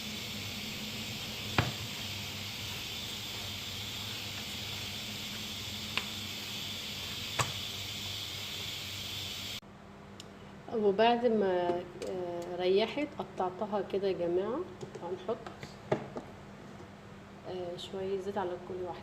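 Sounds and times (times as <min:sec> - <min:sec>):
pressure cooker hissing: 0:00.0 - 0:09.6.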